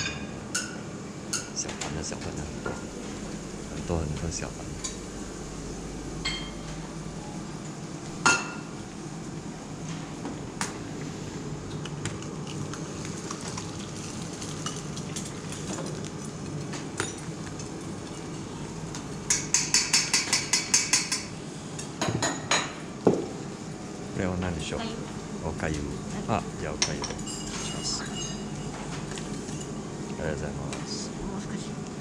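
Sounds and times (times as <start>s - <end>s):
dining-room hum: 0.0s - 32.0s
dishes and cutlery clinking: 26.8s - 29.7s.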